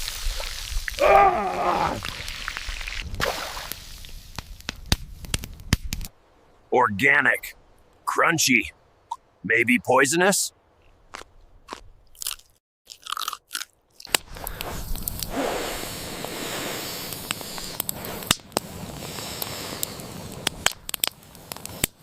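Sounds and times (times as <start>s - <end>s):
crunchy biting and chewing: 10.8s - 14.3s
steady noise haze: 14.2s - 22.0s.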